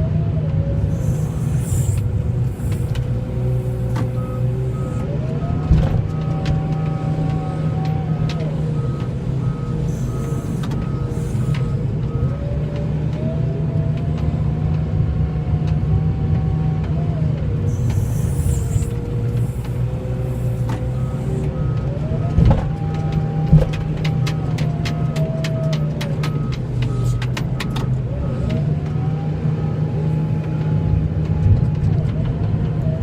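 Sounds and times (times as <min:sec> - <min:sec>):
truck engine running: 0:00.0 - 0:33.0
backup alarm beeping: 0:00.9 - 0:12.4, 0:17.7 - 0:22.2, 0:25.2 - 0:28.5.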